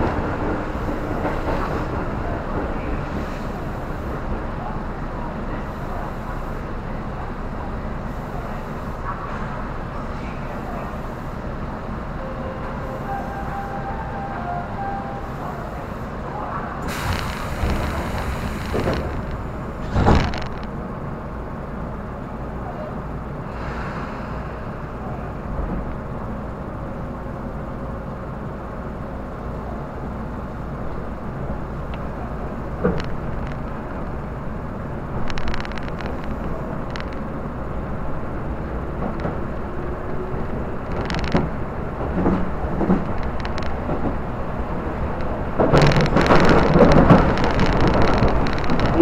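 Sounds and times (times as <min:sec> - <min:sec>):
train rumbling on rails: 0:00.0 - 0:49.0
wheels clicking over rail joints: 0:45.0 - 0:49.0.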